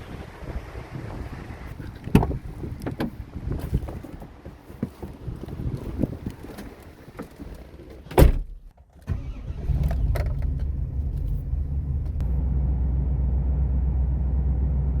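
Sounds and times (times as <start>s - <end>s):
vehicle door shutting: 1.9s - 4.0s, 8.0s - 11.4s
engine starting and idling: 9.0s - 14.0s.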